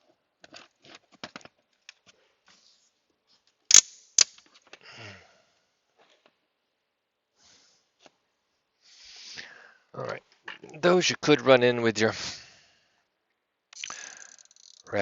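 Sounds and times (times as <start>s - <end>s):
sharp clicks of hand tools: 3.7s - 4.4s, 13.8s - 14.9s.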